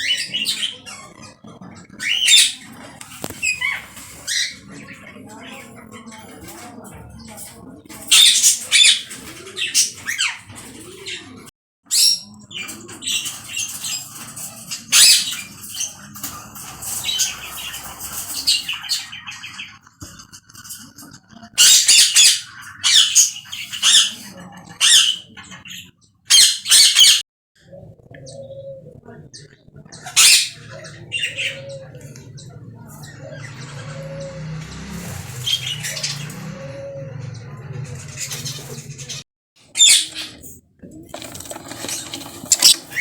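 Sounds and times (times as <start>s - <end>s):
lovebirds squawking: 0.0s - 6.5s, 30.0s - 40.5s, 41.1s - 43.0s.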